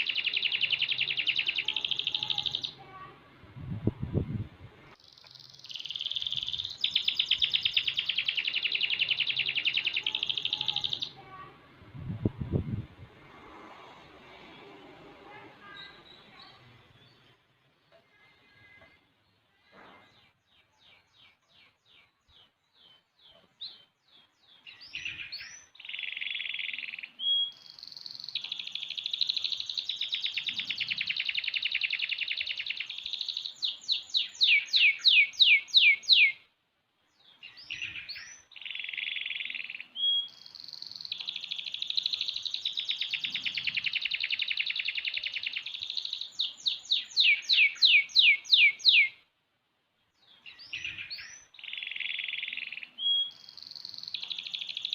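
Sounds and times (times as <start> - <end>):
canary singing trills: 0.0 - 3.1, 5.0 - 11.5, 20.5 - 36.5, 37.2 - 49.3, 50.2 - 54.9.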